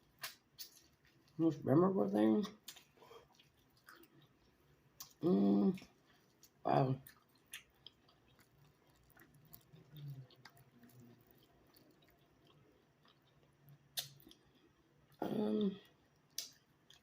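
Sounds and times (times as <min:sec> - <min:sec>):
close-up chewing: 0:00.0 - 0:01.4, 0:02.4 - 0:17.0
wet mouth clicks: 0:14.0 - 0:14.4.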